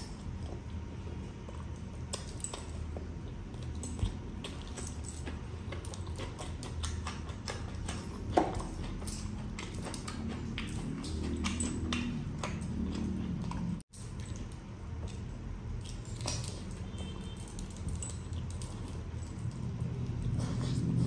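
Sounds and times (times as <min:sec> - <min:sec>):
chewing and wet lip smacking: 0:00.0 - 0:21.0
low steady hum: 0:00.0 - 0:21.0.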